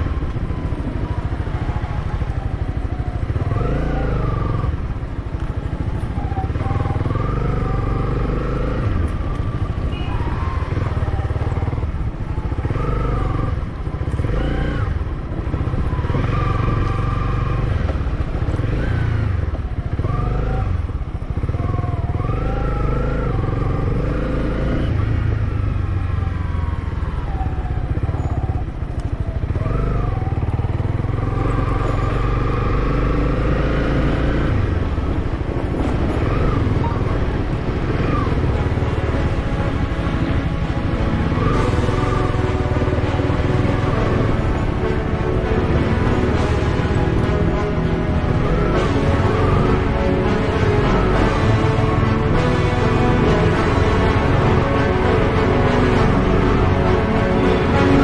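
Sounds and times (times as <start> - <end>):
motorcycle engine revving: 1.5 - 26.7.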